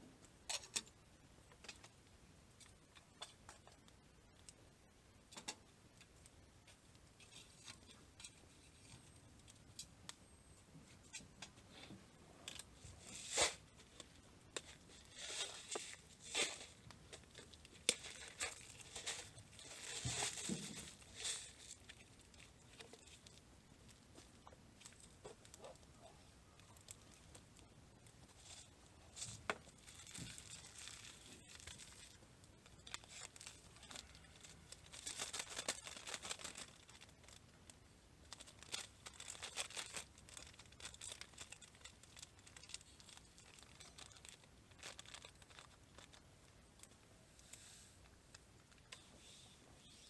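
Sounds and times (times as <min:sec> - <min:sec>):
crinkling and rustling: 0:00.2 - 0:04.6, 0:05.3 - 0:50.0.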